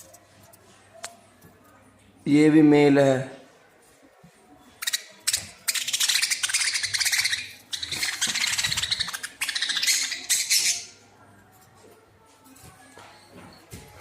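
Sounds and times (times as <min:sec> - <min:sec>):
budgerigars chattering and squawking: 0:04.8 - 0:11.0.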